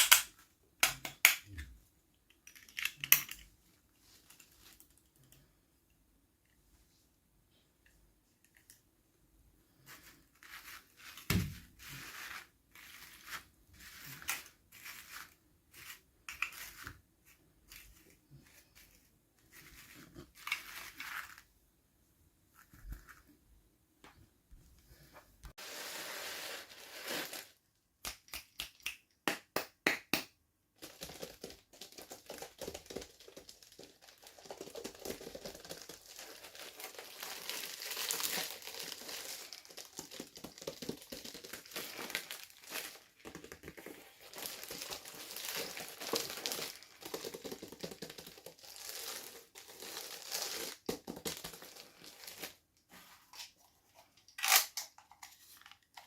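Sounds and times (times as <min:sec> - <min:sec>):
plastic packaging crinkling: 0:25.6 - 0:27.6, 0:30.8 - 0:52.6.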